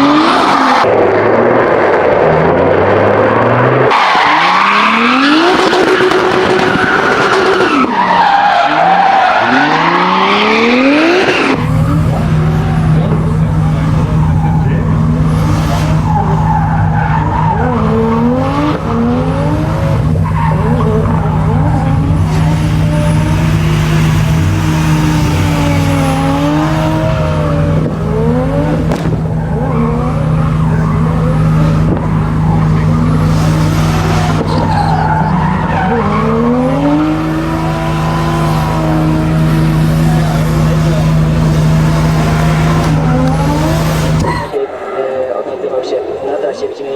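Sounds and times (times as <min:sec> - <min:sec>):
car engine revving: 0:00.0 - 0:46.0
tyre squeal: 0:03.9 - 0:27.8, 0:29.3 - 0:45.0.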